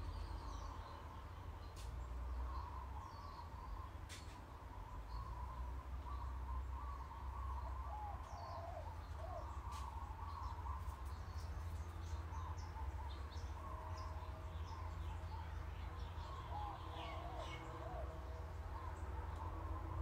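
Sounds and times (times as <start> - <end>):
birds chirping and singing: 0.0 - 20.0.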